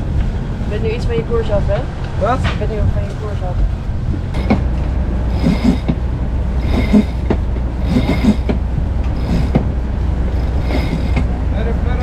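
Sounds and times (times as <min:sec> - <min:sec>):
boat engine droning: 0:00.0 - 0:12.0
winch clicking grind: 0:04.3 - 0:06.0, 0:06.6 - 0:11.4.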